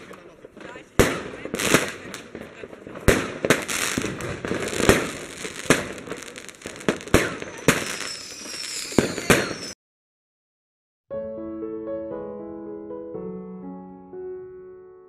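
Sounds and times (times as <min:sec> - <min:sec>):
firework bangs: 0:00.0 - 0:09.8
fireworks crackling: 0:00.0 - 0:09.8
faint high whistle: 0:07.2 - 0:09.8.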